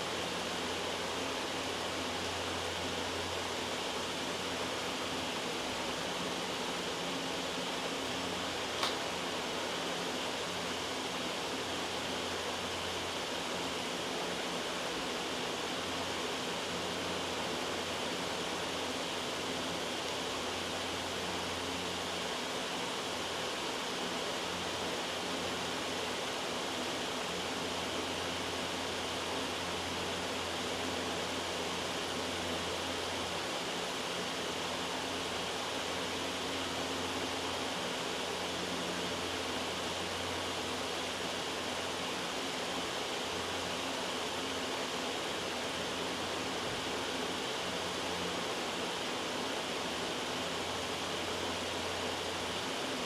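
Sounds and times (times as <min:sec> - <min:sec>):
loud white noise: 0:00.0 - 0:53.0.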